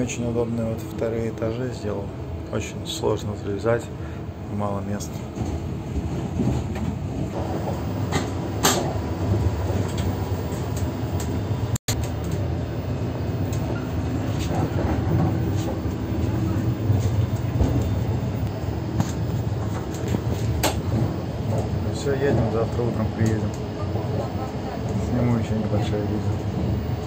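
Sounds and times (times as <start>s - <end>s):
train car rumble and hum: 0.0s - 27.0s.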